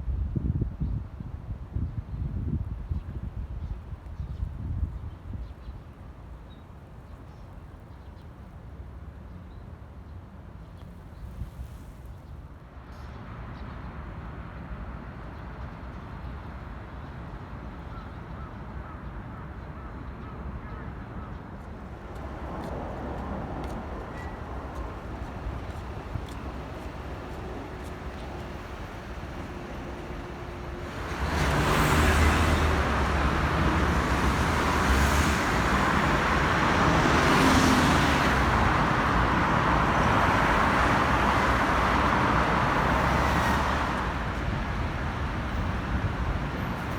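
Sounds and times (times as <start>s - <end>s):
distant traffic hum: 12.8s - 46.9s
vehicles passing: 21.0s - 46.9s.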